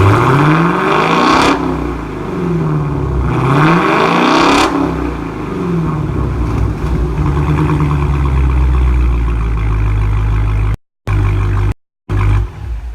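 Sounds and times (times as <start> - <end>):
car engine revving: 0.0 - 12.9
deep engine idle: 5.3 - 12.9.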